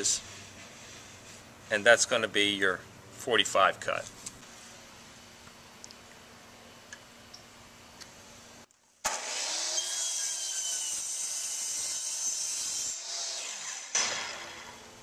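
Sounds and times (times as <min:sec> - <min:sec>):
electric saw cutting wood: 0:09.0 - 0:15.0.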